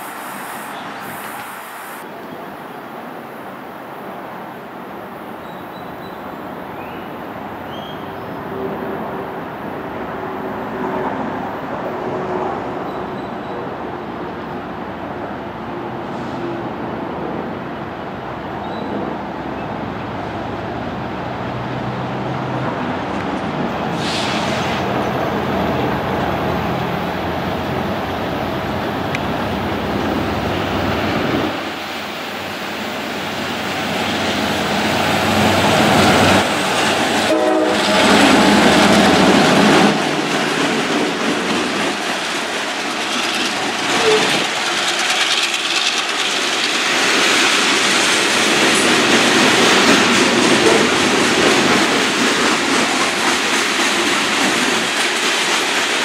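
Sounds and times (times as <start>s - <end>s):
diesel locomotives running: 5.6s - 56.0s
train wheels clattering over rails: 33.2s - 56.0s
train horn: 37.3s - 38.7s.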